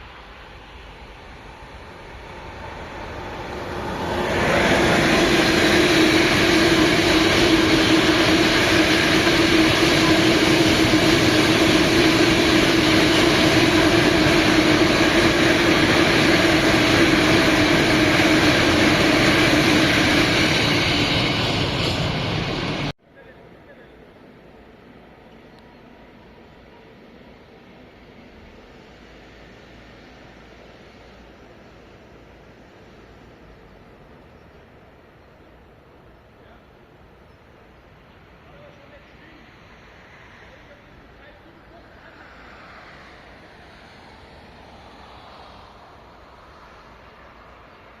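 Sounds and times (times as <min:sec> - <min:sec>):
train wheels rolling on rail: 0:00.0 - 0:22.9.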